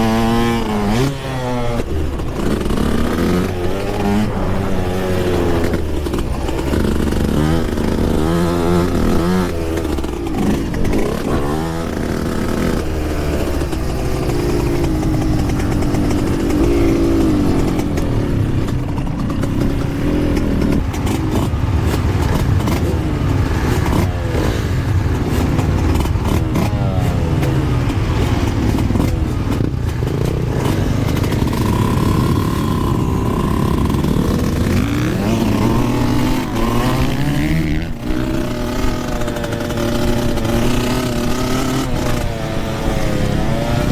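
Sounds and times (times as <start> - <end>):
dirt bike engine revving: 0.0 - 43.9
wind and ground noise: 0.0 - 43.9.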